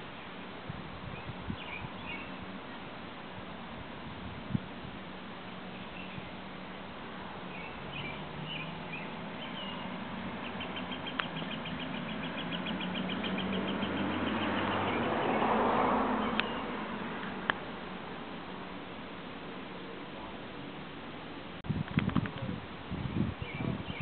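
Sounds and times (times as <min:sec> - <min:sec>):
songbirds chirping: 0:00.0 - 0:04.0, 0:05.0 - 0:21.6, 0:22.3 - 0:24.0
rapid bird trill: 0:07.5 - 0:15.5.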